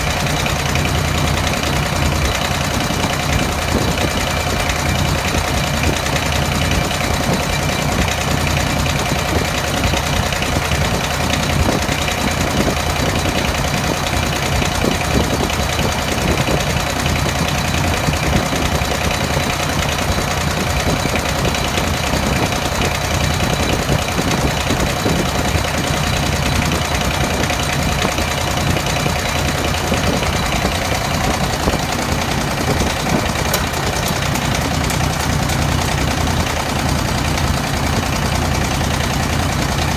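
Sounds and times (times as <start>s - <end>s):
engine idling with knocking: 0.0s - 39.9s.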